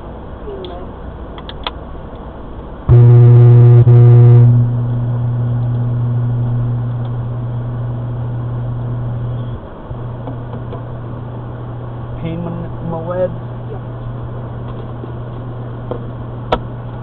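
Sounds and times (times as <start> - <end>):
steady low hum: 0.0 - 17.0
low horn blast: 2.9 - 9.6.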